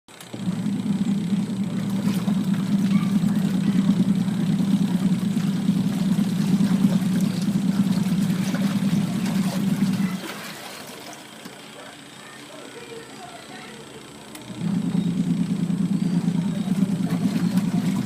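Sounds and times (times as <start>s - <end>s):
washing machine spinning: 0.1s - 18.0s.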